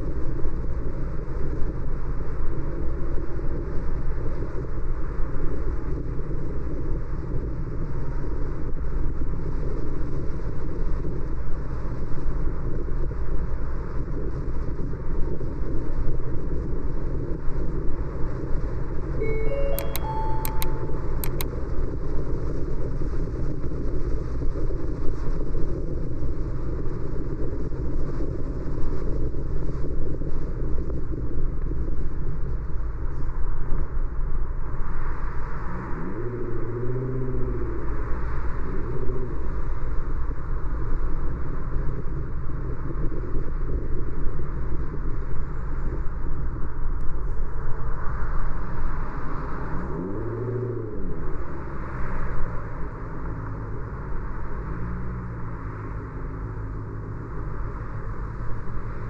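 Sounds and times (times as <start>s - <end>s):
car road and engine noise: 23.6s - 59.0s.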